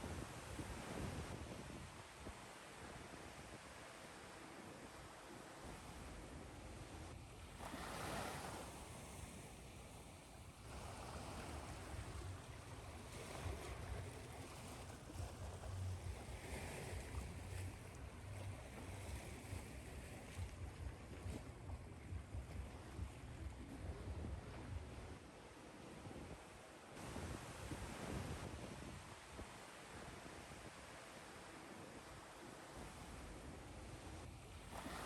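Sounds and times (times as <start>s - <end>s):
ocean surf washing on shore: 7.6s - 26.0s, 27.0s - 35.0s.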